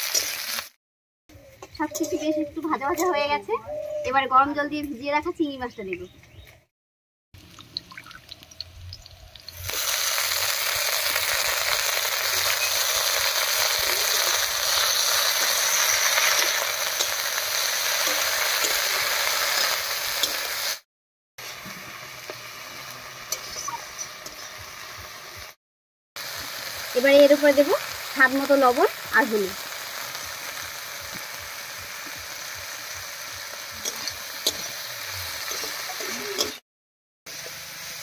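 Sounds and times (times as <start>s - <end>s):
food sizzling in hot oil: 0.0s - 0.8s, 7.4s - 25.6s, 26.2s - 36.6s, 37.3s - 38.0s
metal spatula stirring and scraping: 14.2s - 19.1s, 33.7s - 36.6s.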